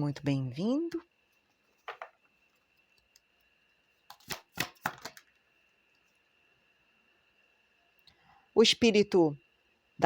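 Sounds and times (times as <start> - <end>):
card snaps and clicks: 4.1 - 5.2
cards being handled: 4.1 - 5.3.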